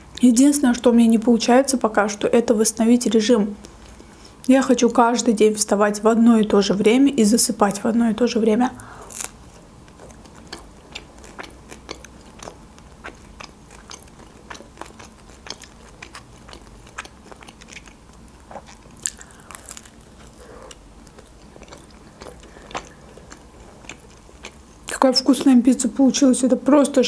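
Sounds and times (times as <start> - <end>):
woman biting and chewing pizza: 8.8 - 24.9.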